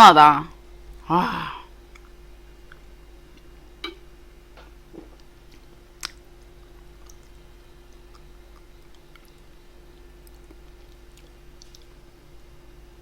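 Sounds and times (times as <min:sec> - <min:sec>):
steady low hum: 0:00.0 - 0:13.0
faint chewing of food: 0:04.6 - 0:12.1.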